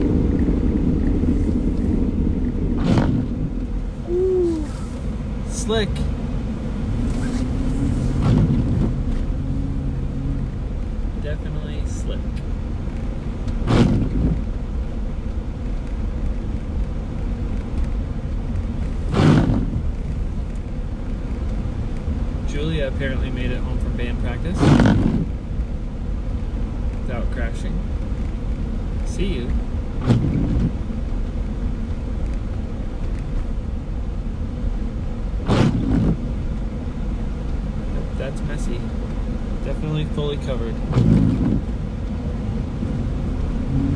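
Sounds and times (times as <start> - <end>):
low road rumble inside car: 0.0 - 43.9.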